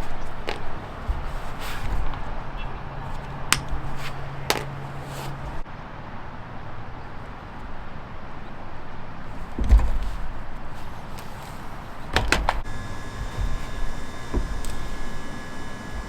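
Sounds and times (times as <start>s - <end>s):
handling noise: 0.0s - 5.6s, 9.3s - 16.0s
low steady hum: 9.7s - 16.0s.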